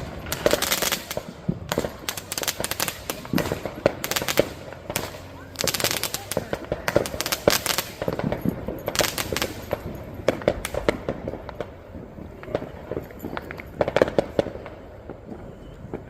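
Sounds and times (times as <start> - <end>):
firecrackers cracking and popping: 0.0 - 16.0.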